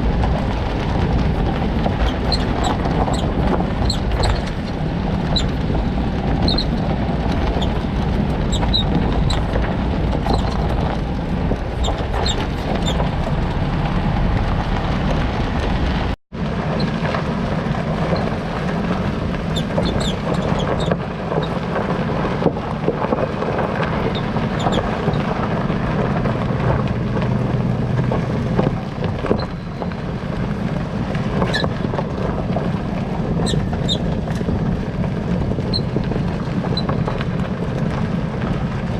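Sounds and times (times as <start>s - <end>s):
car road and running noise: 0.0s - 38.9s
high-pitched suspension squeaks: 2.0s - 5.7s, 6.3s - 9.5s, 10.2s - 10.8s, 11.7s - 13.5s, 19.5s - 21.6s, 24.0s - 25.4s, 29.2s - 29.9s, 31.4s - 31.8s, 33.4s - 34.4s, 35.7s - 36.0s.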